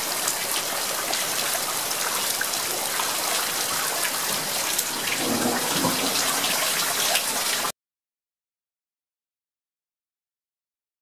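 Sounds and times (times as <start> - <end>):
hail and heavy rain pelting: 2.6 - 7.7
hailstones ticking: 4.8 - 6.8.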